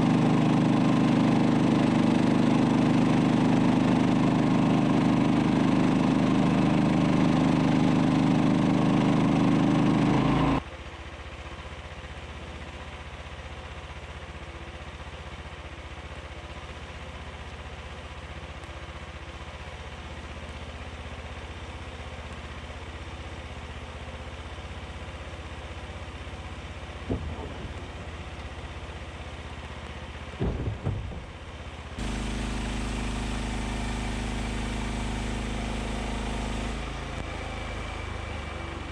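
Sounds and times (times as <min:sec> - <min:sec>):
tractor engine running: 0:00.0 - 0:10.6, 0:23.6 - 0:38.9.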